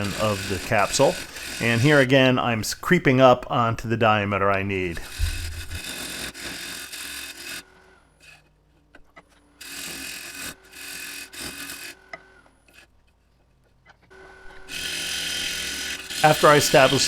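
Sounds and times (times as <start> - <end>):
wood lathe humming: 0.0 - 8.5, 9.5 - 12.9, 14.1 - 17.0
turning tool scraping wood: 0.0 - 17.0.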